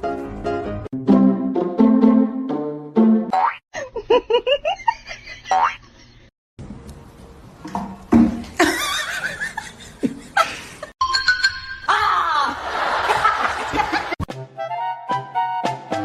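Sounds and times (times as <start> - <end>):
background music: 0.0 - 3.4, 14.3 - 16.0
people laughing: 8.6 - 10.9, 12.4 - 14.2.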